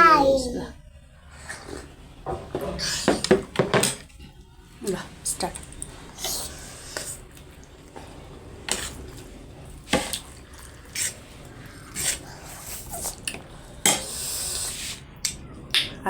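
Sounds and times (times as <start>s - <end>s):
noodles being slurped: 5.8s - 15.1s.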